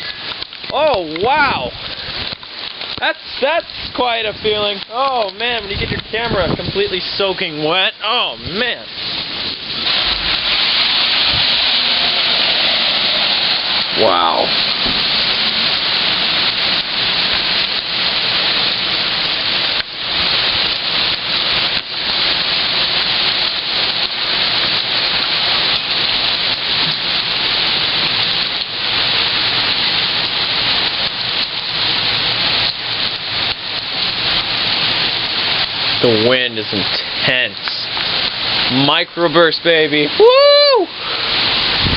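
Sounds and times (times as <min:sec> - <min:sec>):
heavy rain downpour: 0:00.0 - 0:41.9.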